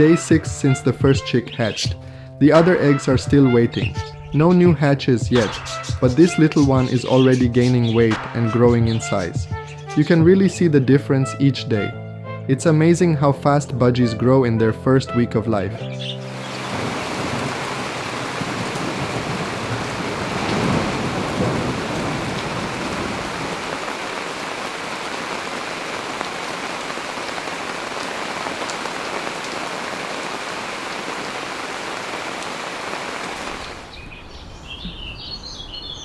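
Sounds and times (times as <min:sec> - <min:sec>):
heavy rain: 0:16.2 - 0:35.3.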